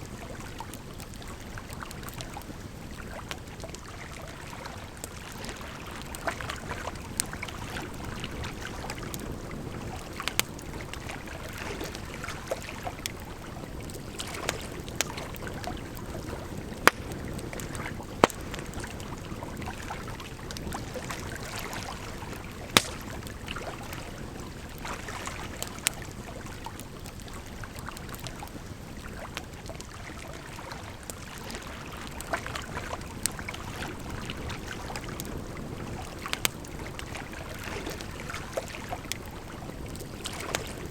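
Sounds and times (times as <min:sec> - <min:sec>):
wood fire crackling and popping: 0:05.0 - 0:21.5, 0:22.1 - 0:24.8, 0:34.5 - 0:40.9.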